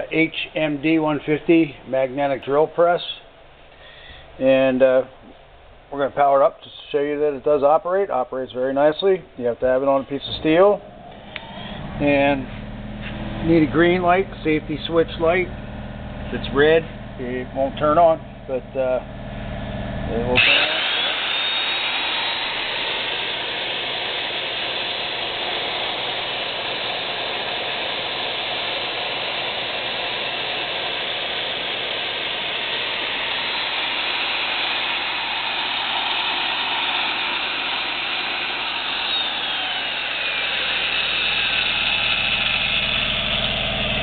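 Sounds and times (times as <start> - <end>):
drill press motor whining: 10.0 - 44.0.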